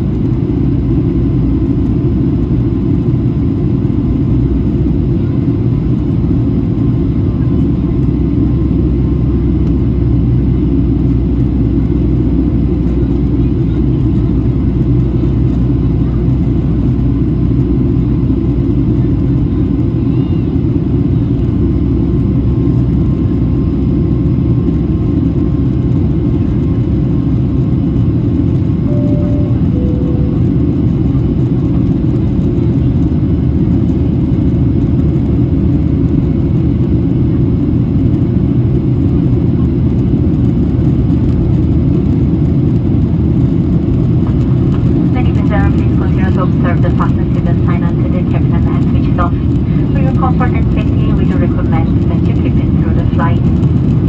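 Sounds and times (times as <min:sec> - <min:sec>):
aircraft cabin rumble: 0:00.0 - 0:54.0
two-note cabin chime: 0:28.9 - 0:30.7.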